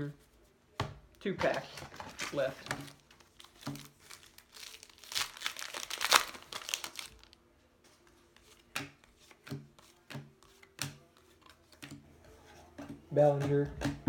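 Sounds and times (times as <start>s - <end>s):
foil wrapper tearing and crumpling: 2.1s - 7.4s
cards tapping: 8.4s - 12.0s.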